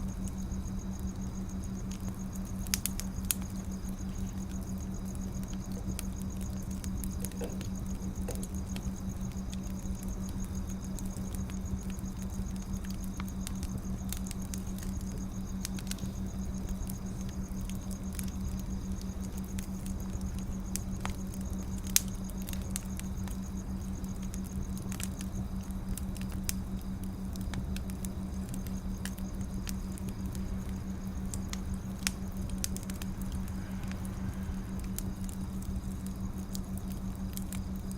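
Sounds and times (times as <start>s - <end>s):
steady low hum: 0.0s - 37.9s
wood fire crackling: 0.0s - 37.9s
low rumble: 29.6s - 37.1s.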